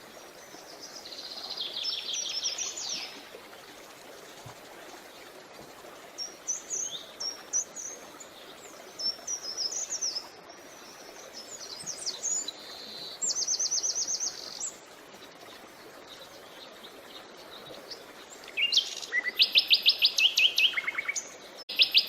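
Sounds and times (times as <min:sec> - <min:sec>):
flowing creek water: 0:00.0 - 0:22.0
small birds chirping: 0:06.2 - 0:22.0.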